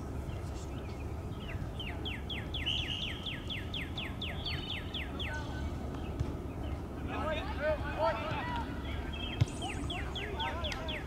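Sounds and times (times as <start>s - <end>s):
bird singing whistled notes: 0.2s - 5.6s, 9.0s - 11.0s.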